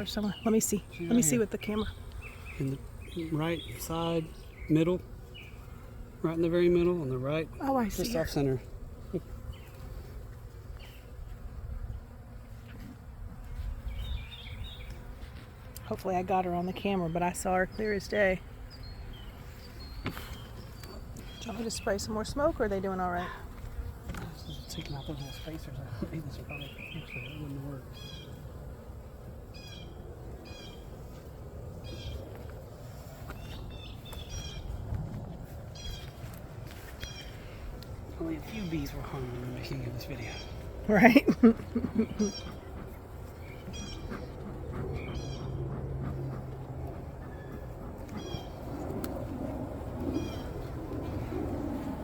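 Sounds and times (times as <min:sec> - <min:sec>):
honey bees buzzing: 0:00.0 - 0:52.0
steady low rumble: 0:27.5 - 0:52.0
high-pitched animal calls: 0:42.0 - 0:48.7.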